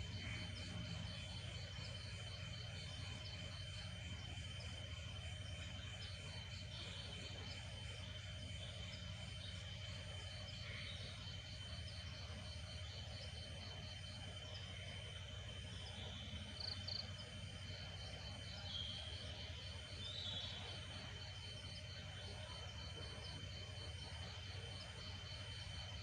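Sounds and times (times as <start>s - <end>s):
louder insect calls: 0.0s - 26.0s
night insects chirping: 0.0s - 26.0s.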